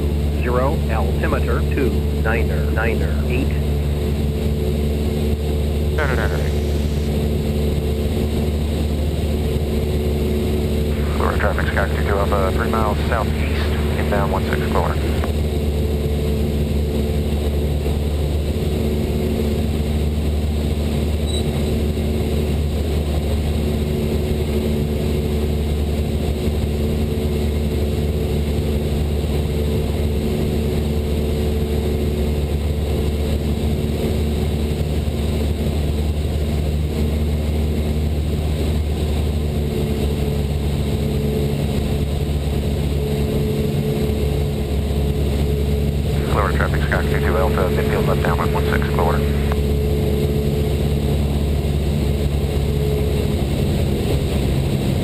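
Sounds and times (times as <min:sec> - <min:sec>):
propeller plane engine droning: 0:00.0 - 0:55.0.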